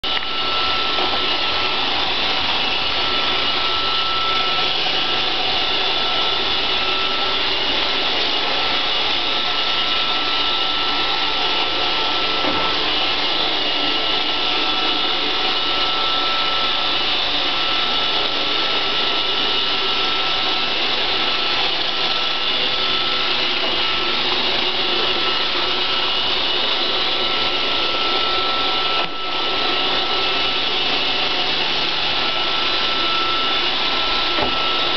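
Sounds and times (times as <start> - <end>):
robot vacuum whirring: 0.1 - 34.9.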